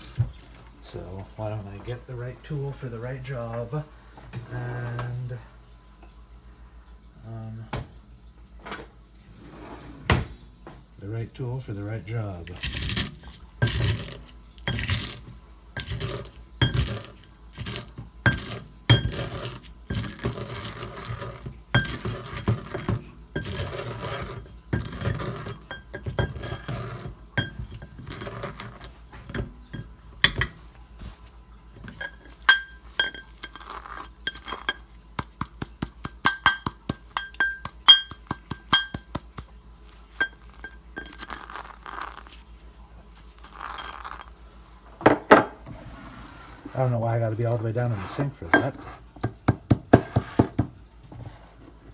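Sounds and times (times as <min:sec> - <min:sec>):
utensil grinding eggshells: 0:12.3 - 0:29.0, 0:31.8 - 0:42.5, 0:43.1 - 0:44.5.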